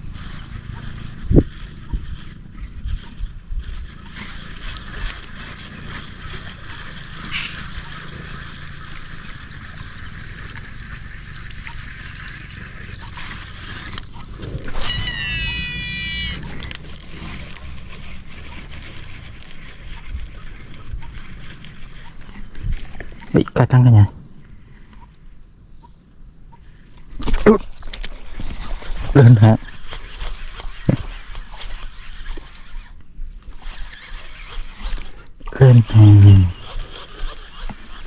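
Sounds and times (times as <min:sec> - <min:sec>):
birds chirping: 0:00.0 - 0:38.0
bird warbling call: 0:03.6 - 0:10.4, 0:11.0 - 0:13.4, 0:14.1 - 0:16.7, 0:18.5 - 0:21.2.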